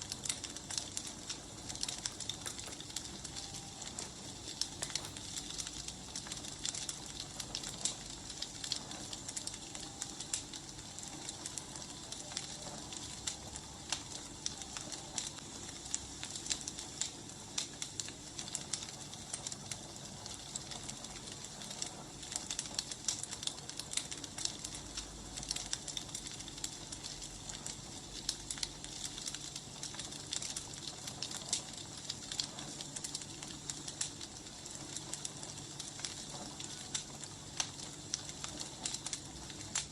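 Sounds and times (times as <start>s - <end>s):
firewood crackling: 0.0s - 39.9s.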